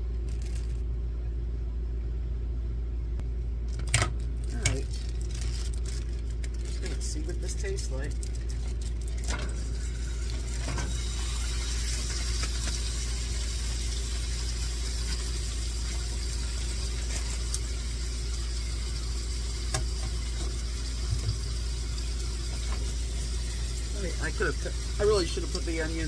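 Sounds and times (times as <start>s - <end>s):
low hum: 0.0s - 26.0s
chicken sizzling in a pan: 9.6s - 26.0s.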